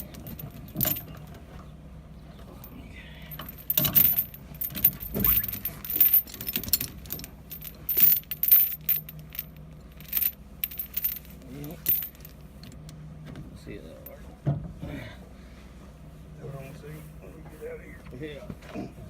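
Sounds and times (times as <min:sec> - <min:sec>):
metal clinking and rattling: 0:00.0 - 0:01.5, 0:02.6 - 0:12.8
steady low hum: 0:00.0 - 0:19.0.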